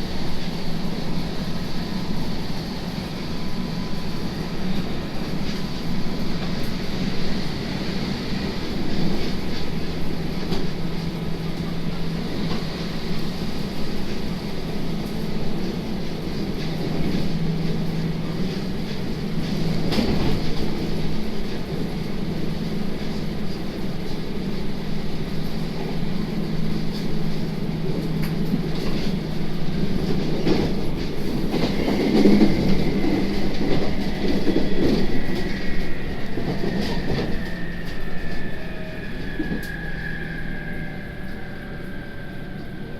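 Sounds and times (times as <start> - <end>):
rail rumble: 0.0 - 42.9
train motor hum: 24.7 - 42.9
thin high whine: 31.8 - 42.9.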